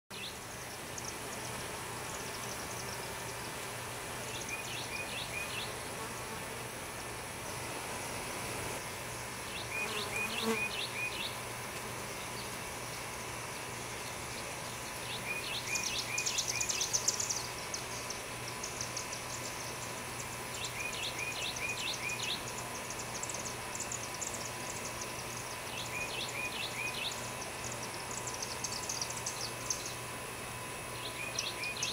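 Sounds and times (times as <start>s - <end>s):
songbird singing: 0.1s - 6.5s, 8.8s - 31.9s
steady low hum: 0.1s - 31.9s.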